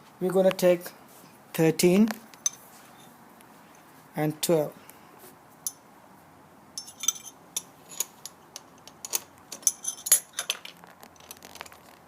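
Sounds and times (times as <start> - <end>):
metal tools clinking: 6.8 - 11.8.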